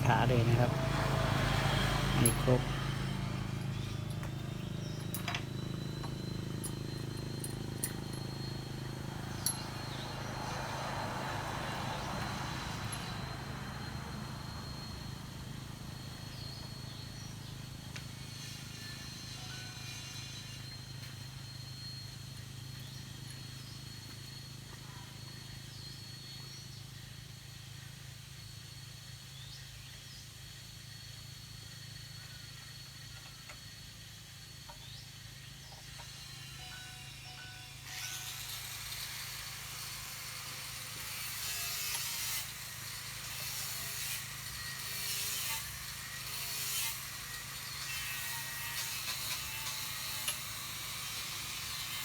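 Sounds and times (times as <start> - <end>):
high thin whine: 0.0 - 15.7.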